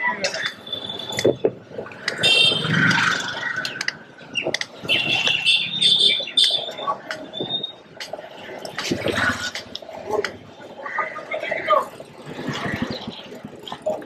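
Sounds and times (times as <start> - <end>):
low traffic hum: 0.0 - 14.0
high chirps or squeaks: 0.2 - 1.4, 3.0 - 7.9
scattered clicks: 3.4 - 4.8, 6.3 - 7.3, 8.0 - 10.4.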